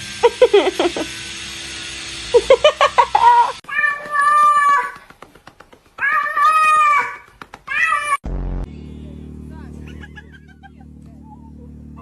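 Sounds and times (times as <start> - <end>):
meow-like wails: 3.7 - 5.0
animal yelping cries: 6.0 - 8.2.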